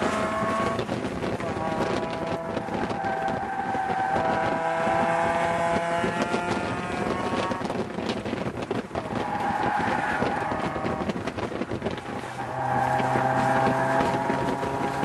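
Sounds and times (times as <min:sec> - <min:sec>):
car engine under load: 0:00.0 - 0:15.0
wind buffeting microphone: 0:00.0 - 0:15.0.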